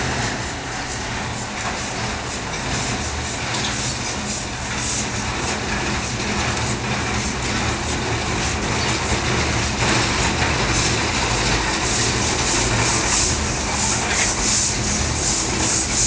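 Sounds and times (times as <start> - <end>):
rhythmic hissing steam beats: 0.0 - 16.0
steam locomotive rumbling: 0.0 - 16.0.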